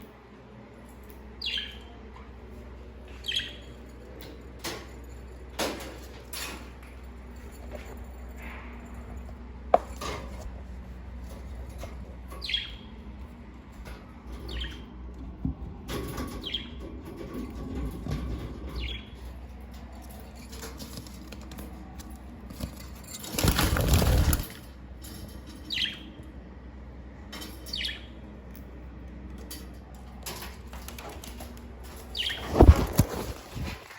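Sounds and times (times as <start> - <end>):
steady low hum: 0.0 - 33.9
budgerigars chirping: 1.4 - 1.9, 3.2 - 3.6, 12.4 - 12.9, 32.1 - 32.4
wings flapping: 22.5 - 24.6, 32.0 - 33.9.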